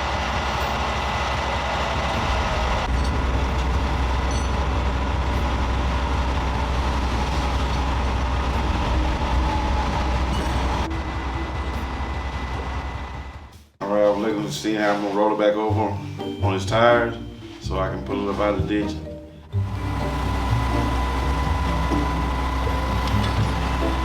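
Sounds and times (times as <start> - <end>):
low drone: 0.0 - 13.5, 19.3 - 24.0
heavy vehicle rumble: 0.0 - 15.4, 16.0 - 24.0
road noise: 0.0 - 24.0.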